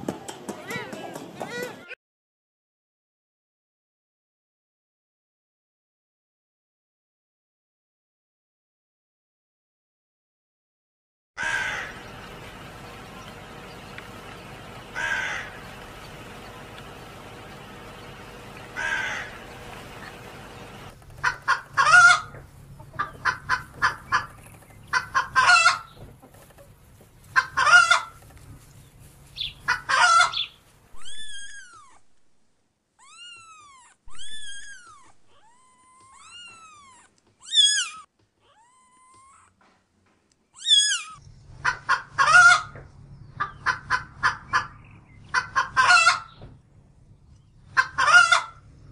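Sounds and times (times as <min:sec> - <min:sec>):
crow cawing: 0:11.4 - 0:12.4, 0:14.8 - 0:16.5, 0:18.4 - 0:20.2
chickens clucking: 0:11.4 - 0:31.1, 0:41.5 - 0:46.5, 0:47.4 - 0:48.8
chicks peeping: 0:11.4 - 0:31.2.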